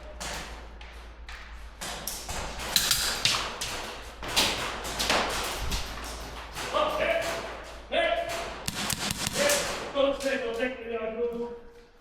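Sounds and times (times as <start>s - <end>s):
airsoft guns firing: 2.3s - 10.1s
pellets hitting hard surfaces: 8.6s - 9.8s.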